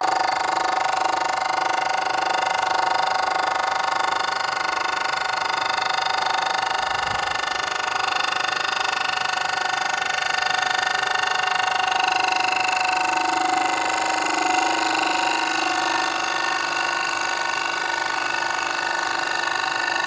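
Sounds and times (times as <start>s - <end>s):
milling machine whine: 0.0s - 20.0s.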